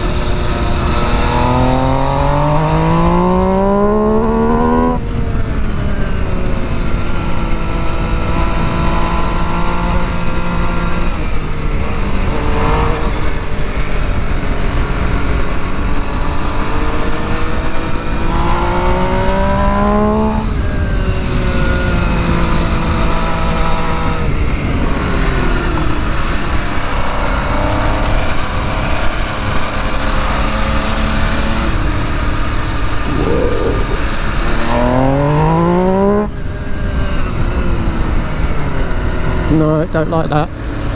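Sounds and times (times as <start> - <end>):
motorcycle engine accelerating: 0.0 - 39.5
steady rushing noise: 32.9 - 35.5.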